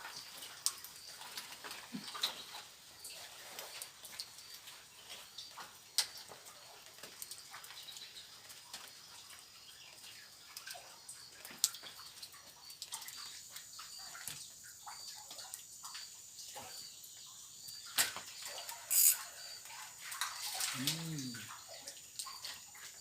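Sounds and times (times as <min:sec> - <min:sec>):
high-pitched wildlife chirping: 0:18.9 - 0:19.4.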